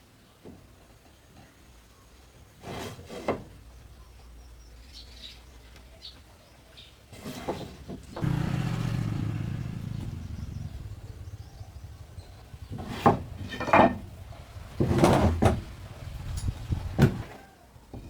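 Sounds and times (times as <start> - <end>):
low engine hum: 8.2 - 17.2.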